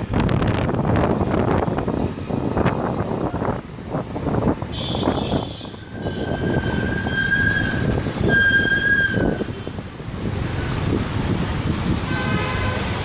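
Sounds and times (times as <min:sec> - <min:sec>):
city road traffic: 0:00.0 - 0:13.0
vehicle horn: 0:04.7 - 0:09.7, 0:12.0 - 0:13.0.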